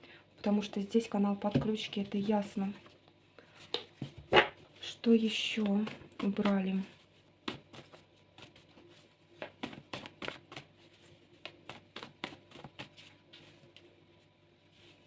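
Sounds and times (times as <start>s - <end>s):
cards being shuffled: 7.5s - 13.7s.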